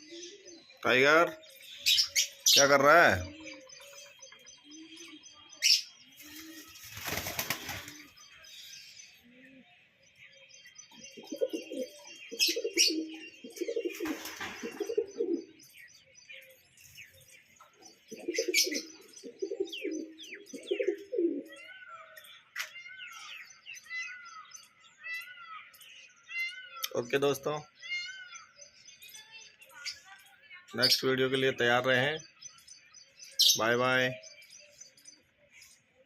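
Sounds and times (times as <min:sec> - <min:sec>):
pigeons cooing: 0:00.0 - 0:00.8, 0:01.4 - 0:09.6, 0:10.9 - 0:22.3
small birds chirping: 0:00.0 - 0:36.0
wing flapping: 0:06.2 - 0:08.2.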